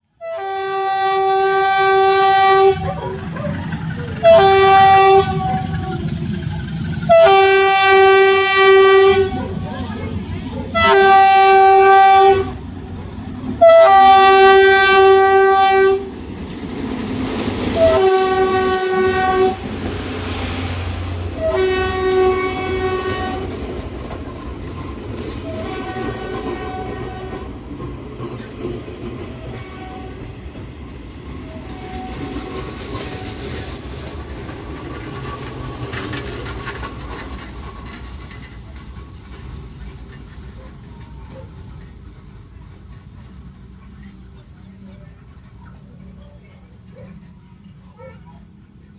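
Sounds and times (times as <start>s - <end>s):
train running noise: 0.0s - 48.9s
locomotive horn blasts: 0.2s - 2.9s, 4.2s - 6.1s, 7.1s - 9.5s, 10.7s - 12.6s, 13.6s - 16.1s, 17.8s - 19.7s, 21.4s - 23.6s, 25.4s - 27.4s, 29.5s - 30.3s
wheel clatter on rails: 2.6s - 20.0s, 22.0s - 47.7s.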